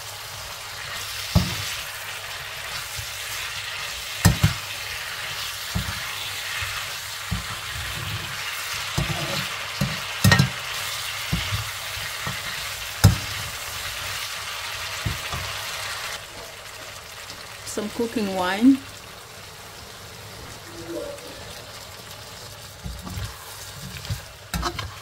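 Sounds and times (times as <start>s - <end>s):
meat sizzling in a wok: 0.0s - 25.0s
metal spoon scraping and knocking pan: 4.2s - 4.7s, 5.7s - 13.5s, 22.8s - 25.0s.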